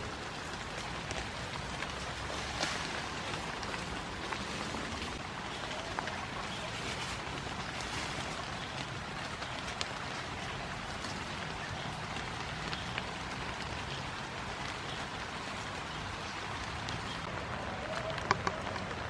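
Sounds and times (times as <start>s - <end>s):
rain falling on grass: 0.0s - 19.0s.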